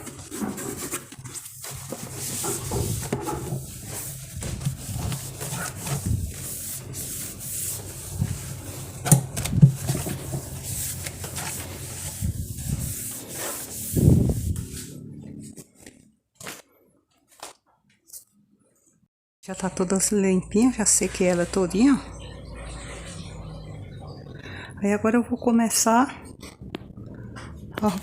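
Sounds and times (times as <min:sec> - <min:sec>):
cloth rubbing plastic: 0:00.0 - 0:16.6.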